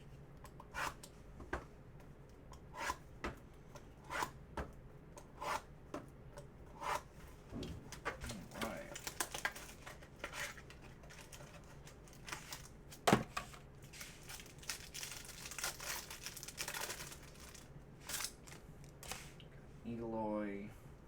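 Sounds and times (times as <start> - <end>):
plastic wrapping crinkling and tearing: 8.3 - 12.8, 14.0 - 19.3.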